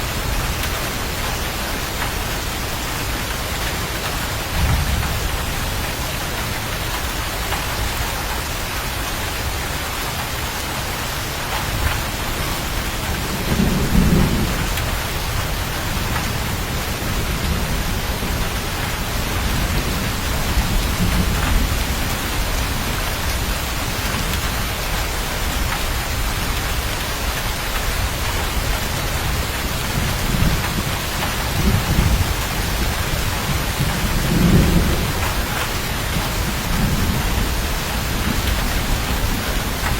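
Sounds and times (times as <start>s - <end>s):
heavy rain: 0.0s - 39.9s
thunder rolling: 4.4s - 7.9s, 11.8s - 26.5s, 28.0s - 39.9s.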